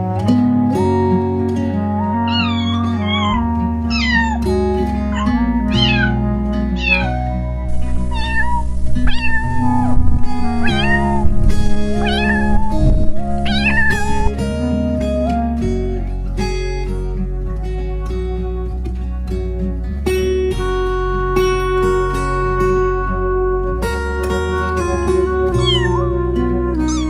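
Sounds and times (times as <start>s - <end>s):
background music with bass: 0.0s - 27.0s
cat meowing: 2.3s - 4.5s, 5.1s - 6.2s, 6.8s - 14.4s, 25.5s - 26.2s.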